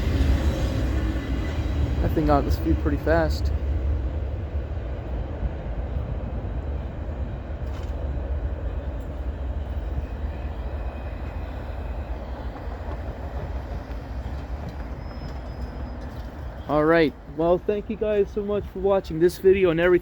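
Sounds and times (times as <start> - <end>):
freight train rumbling: 0.0 - 20.0
thin whine from train wheels: 8.9 - 16.7.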